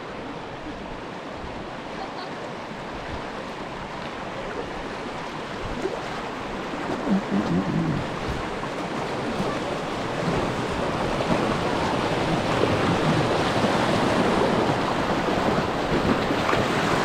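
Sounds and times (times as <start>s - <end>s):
creek water rushing: 0.0s - 17.0s
short low-pitched sounds: 6.9s - 8.4s.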